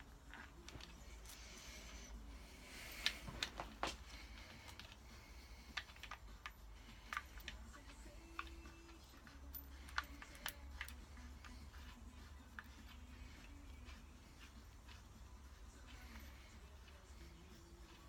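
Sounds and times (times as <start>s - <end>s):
clicks and taps of tools: 5.7s - 11.6s.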